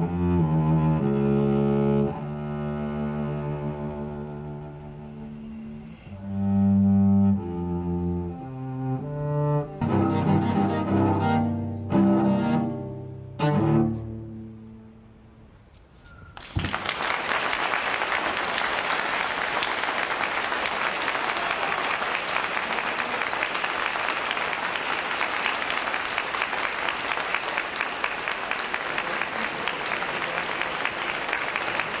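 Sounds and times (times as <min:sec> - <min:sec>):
audience applauding: 0:16.4 - 0:32.0.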